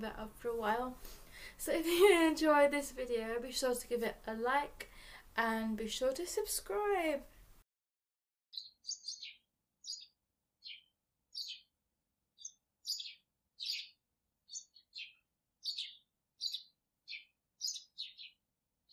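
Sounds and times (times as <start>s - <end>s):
songbird chirping: 8.5s - 18.9s.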